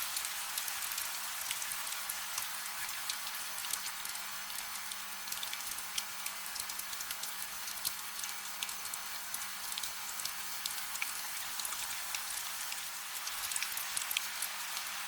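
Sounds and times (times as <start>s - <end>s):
gentle rain hiss: 0.0s - 15.0s
rain drop ticks: 0.2s - 14.9s.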